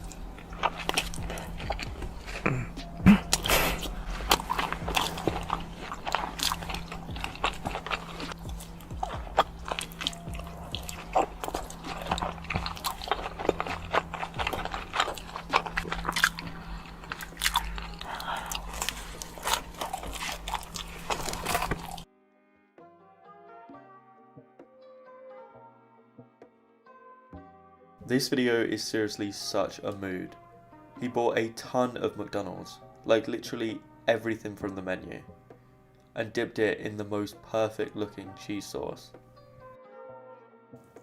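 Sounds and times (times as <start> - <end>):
person chewing with crunching: 0.0 - 22.1.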